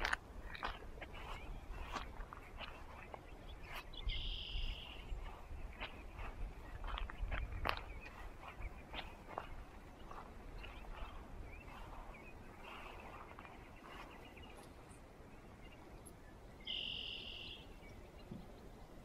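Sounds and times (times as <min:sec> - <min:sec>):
faint bird chirps: 0:02.6 - 0:18.8.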